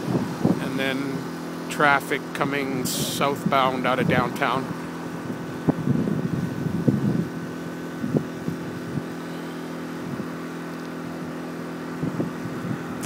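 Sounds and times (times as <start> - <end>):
busy road traffic hum: 0.0 - 13.0
short low thumps: 4.6 - 7.3.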